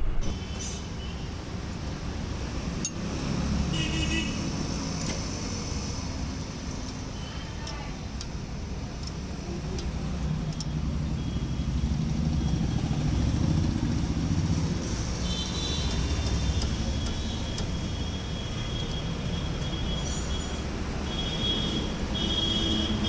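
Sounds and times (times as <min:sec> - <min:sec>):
low rumble: 0:00.0 - 0:00.4.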